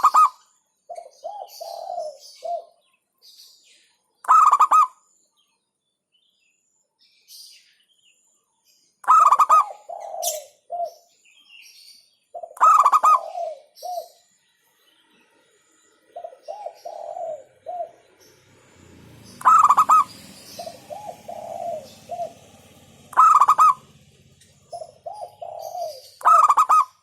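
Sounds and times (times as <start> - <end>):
dove cooing: 0.0 - 2.8, 4.3 - 4.9, 9.0 - 11.1, 12.3 - 14.3, 16.1 - 27.0.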